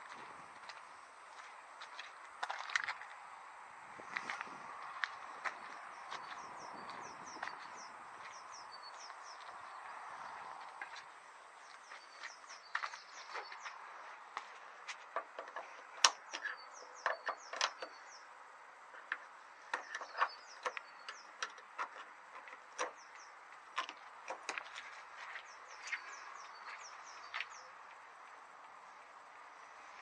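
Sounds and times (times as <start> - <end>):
bird chirping: 5.5 - 11.0, 11.6 - 27.9.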